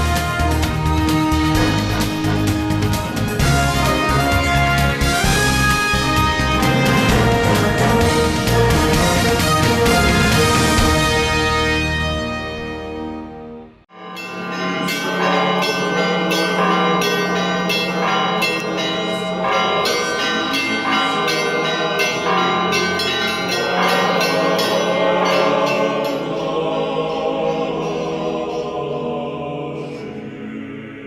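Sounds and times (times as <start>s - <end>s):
church bells ringing: 0.0s - 12.9s, 13.9s - 29.2s.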